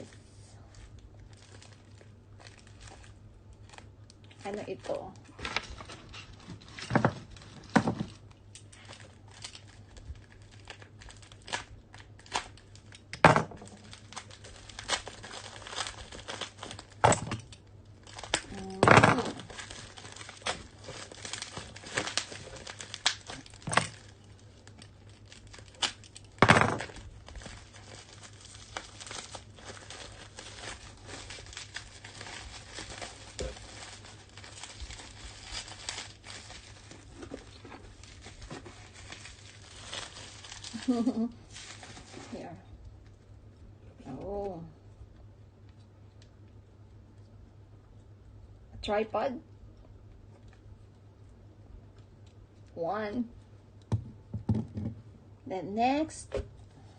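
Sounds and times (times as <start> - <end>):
faint steady hum: 0.0 - 56.9
packaging crinkling and tearing: 0.6 - 43.2.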